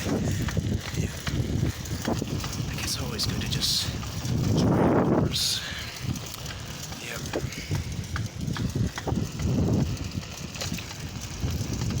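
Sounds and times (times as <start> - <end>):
bicycle rumbling and knocking: 0.0 - 12.0.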